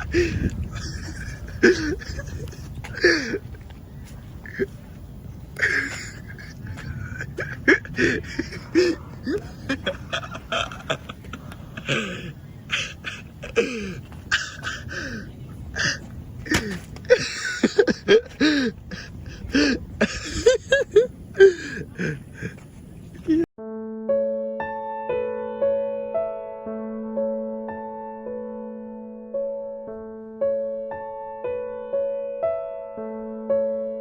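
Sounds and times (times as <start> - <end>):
little laughs: 0.0 - 3.4, 5.6 - 15.2, 15.8 - 22.6.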